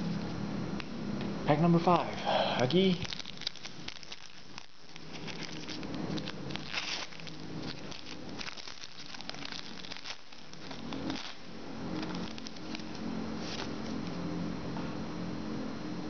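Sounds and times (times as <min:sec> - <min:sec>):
cards rustling: 0:02.7 - 0:14.2
wrapper crinkling: 0:02.7 - 0:14.2
wrapper tearing: 0:02.8 - 0:14.2.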